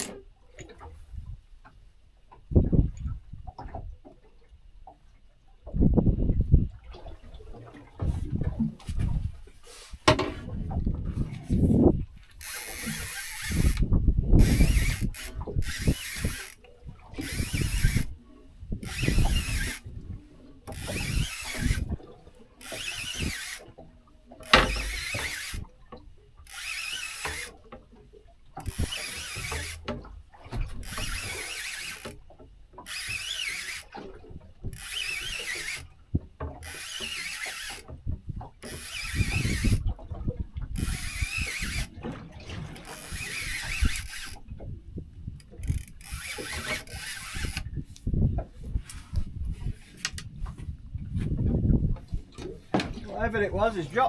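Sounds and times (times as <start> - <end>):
fishing reel clicking: 12.3 - 18.2, 18.8 - 19.9, 20.7 - 22.0, 22.6 - 25.7, 26.4 - 27.7, 28.6 - 30.0, 30.7 - 38.0, 38.6 - 40.0, 40.7 - 42.0, 42.8 - 44.6, 45.4 - 47.8.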